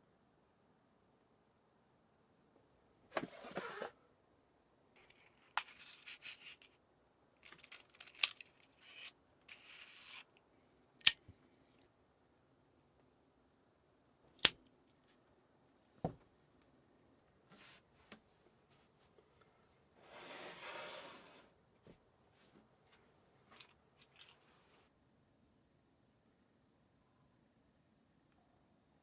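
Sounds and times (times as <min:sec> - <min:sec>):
rustling: 0:03.1 - 0:04.0, 0:07.4 - 0:10.4, 0:22.3 - 0:24.9.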